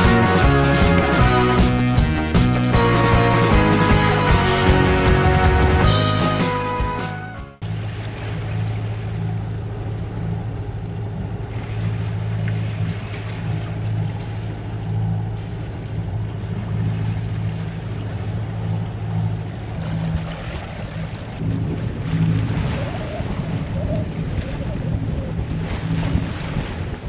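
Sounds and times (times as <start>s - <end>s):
water wash: 0.0s - 7.0s, 7.6s - 27.0s
boat engine humming: 0.0s - 27.0s
wind noise: 20.1s - 27.0s.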